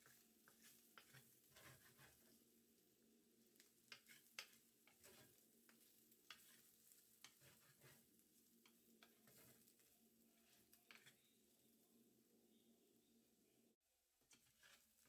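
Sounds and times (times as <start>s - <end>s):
spatula scraping frying pan: 0.0s - 2.4s, 3.9s - 11.3s, 14.3s - 15.0s
light sizzle: 0.0s - 13.4s, 14.1s - 15.0s.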